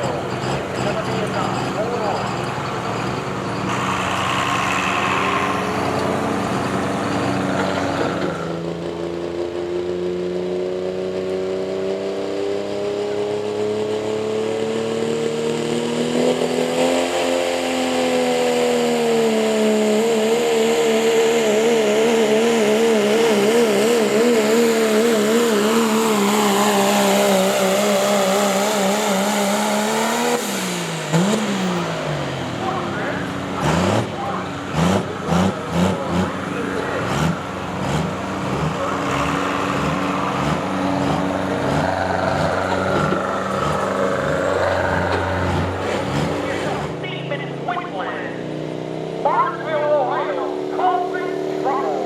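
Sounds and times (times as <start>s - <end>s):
engine running hard under load: 0.0s - 9.0s, 18.2s - 47.2s.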